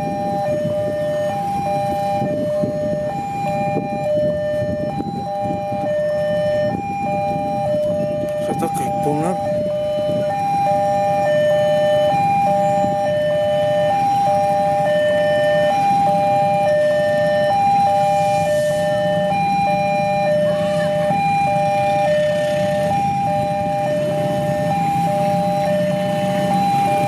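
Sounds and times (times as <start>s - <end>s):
two-tone level crossing alarm: 0.0s - 27.0s.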